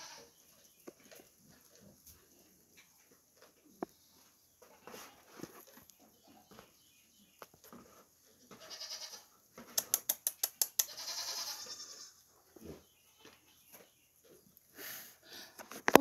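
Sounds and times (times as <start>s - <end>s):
young goats bleating: 0.0s - 0.4s, 8.4s - 9.4s, 10.8s - 12.8s
sharp clicks: 9.7s - 11.0s.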